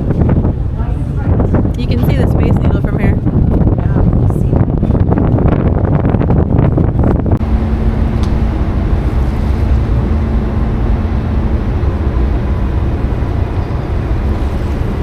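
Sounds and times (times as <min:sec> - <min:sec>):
water noise: 0:00.0 - 0:15.0
wind buffeting microphone: 0:00.0 - 0:15.0
ferry engines droning: 0:07.3 - 0:15.0.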